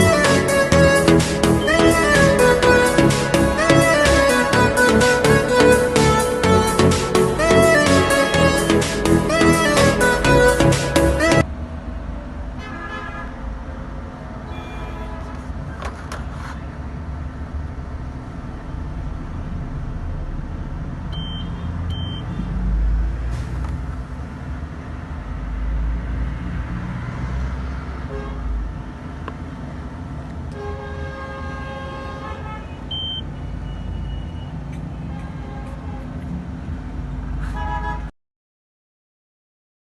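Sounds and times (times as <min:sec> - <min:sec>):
road traffic rumbling: 0:00.0 - 0:38.1
vehicle horns tooting: 0:01.5 - 0:04.4, 0:07.3 - 0:09.8, 0:12.6 - 0:13.4, 0:14.5 - 0:15.5, 0:28.1 - 0:28.6, 0:30.5 - 0:36.3, 0:37.4 - 0:38.1.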